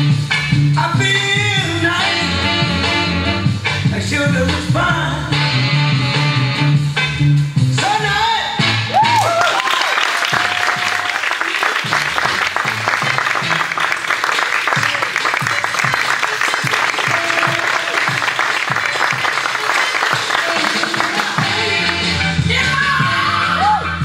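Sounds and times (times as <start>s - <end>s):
performance music with bass: 0.0s - 24.0s
audience applauding: 9.0s - 22.1s.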